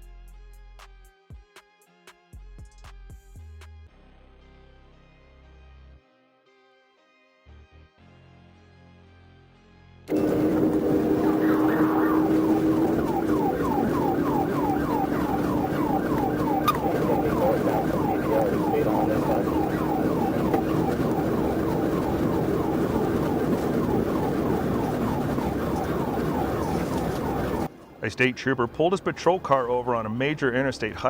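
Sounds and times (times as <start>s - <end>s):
police siren yelping: 10.1s - 27.7s
vehicle and road noise: 10.1s - 31.0s.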